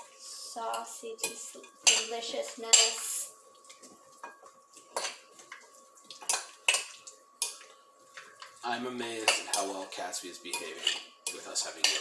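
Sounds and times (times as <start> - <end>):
fork clinking against a bowl: 10.5 - 12.0.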